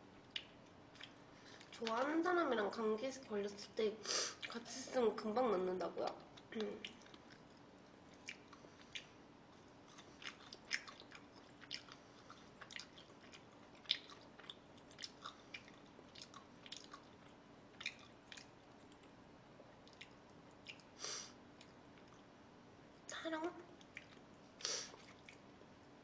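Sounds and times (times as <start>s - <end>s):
person chewing food: 0.2s - 2.0s, 6.2s - 22.3s, 23.8s - 25.5s.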